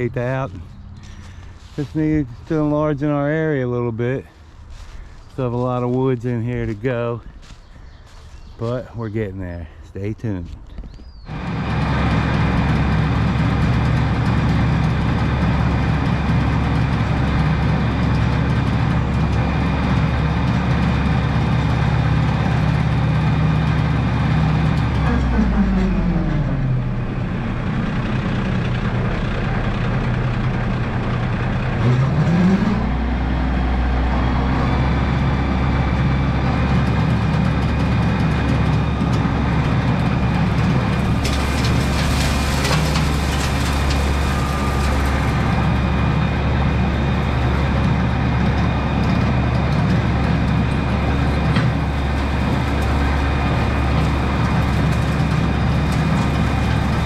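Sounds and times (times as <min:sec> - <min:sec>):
tractor diesel engine revving: 0:00.0 - 0:07.2, 0:11.3 - 0:57.0
crackling: 0:38.8 - 0:57.0.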